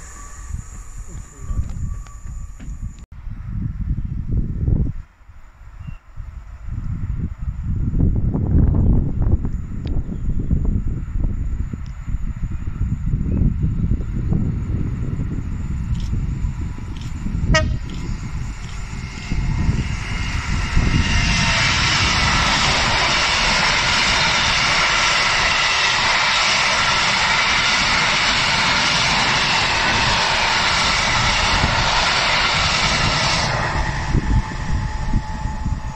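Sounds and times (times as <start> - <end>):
diesel locomotive engine: 0.0 - 35.9
wagons rumbling over rails: 14.1 - 35.9.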